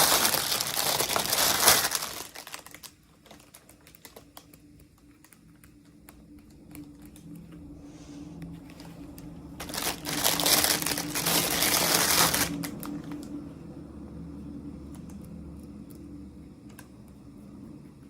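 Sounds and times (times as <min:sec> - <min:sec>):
packaging crinkling and rustling: 0:00.0 - 0:07.5, 0:08.7 - 0:13.3.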